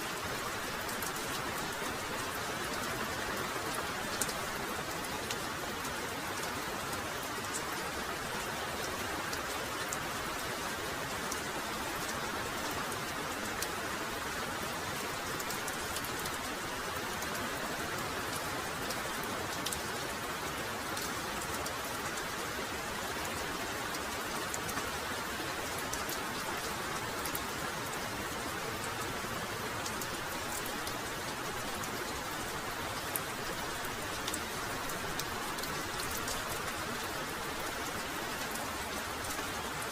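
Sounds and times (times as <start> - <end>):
heavy rain pouring: 0.0 - 39.9
sharp raindrop ticks: 29.7 - 39.6.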